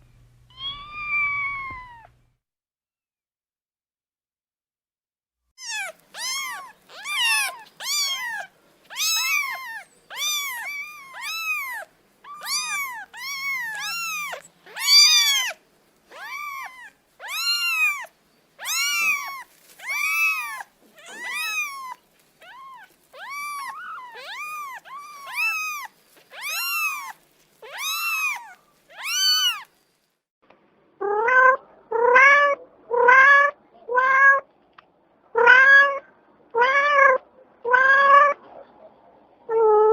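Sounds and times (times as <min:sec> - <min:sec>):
cat meowing high-pitched: 0:00.5 - 0:02.2, 0:05.6 - 0:29.7, 0:31.0 - 0:34.5, 0:35.4 - 0:38.4, 0:39.5 - 0:39.9
lower-voiced cat meowing: 0:00.5 - 0:02.2, 0:05.6 - 0:29.7, 0:31.0 - 0:34.5, 0:35.4 - 0:36.0, 0:36.6 - 0:38.4.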